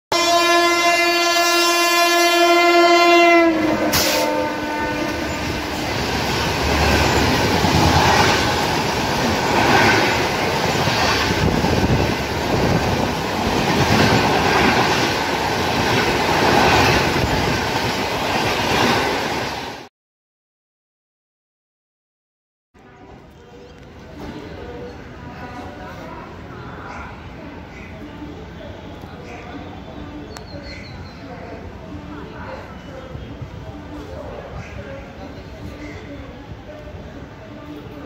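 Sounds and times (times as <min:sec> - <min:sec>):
locomotive horn: 0:00.1 - 0:06.1
train coaches rushing past: 0:02.8 - 0:19.9.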